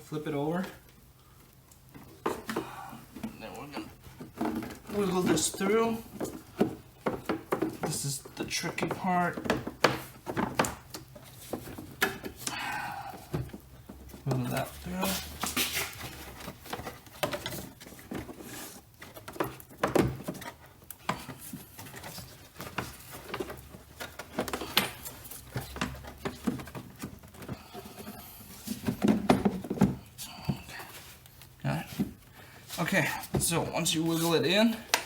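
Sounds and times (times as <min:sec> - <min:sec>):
air filter scraping in housing: 0:02.6 - 0:07.2, 0:13.4 - 0:35.0.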